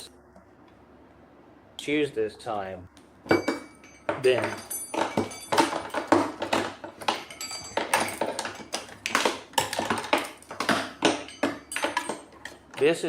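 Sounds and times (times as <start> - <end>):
hard parts clicking and clinking: 3.3 - 13.0.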